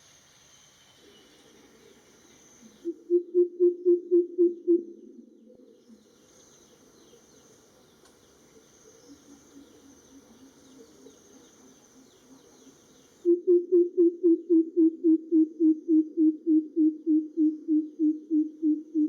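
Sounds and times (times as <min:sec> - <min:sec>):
bird deep resonant call: 0:02.6 - 0:07.2, 0:09.0 - 0:19.0.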